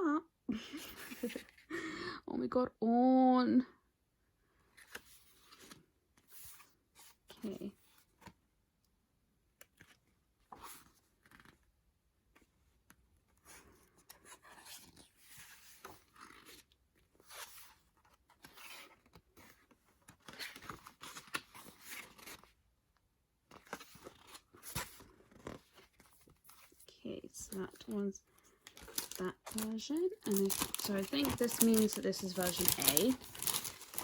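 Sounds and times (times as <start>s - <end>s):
packaging rustling and crinkling: 27.5s - 34.0s.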